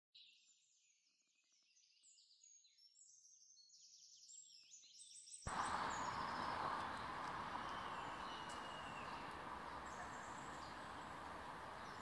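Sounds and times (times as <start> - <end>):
outdoor background rumble: 5.5 - 12.0
songbird singing: 5.5 - 12.0.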